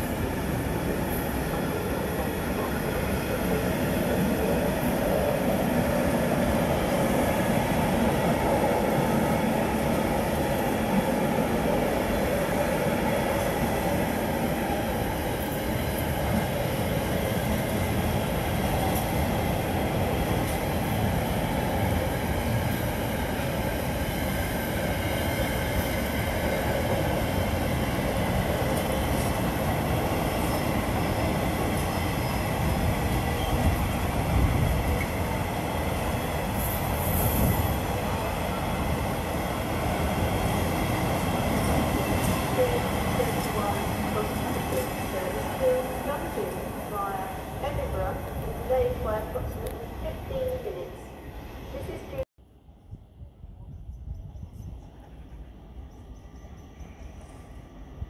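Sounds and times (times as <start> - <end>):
train wheels on rails: 0.0 - 52.3.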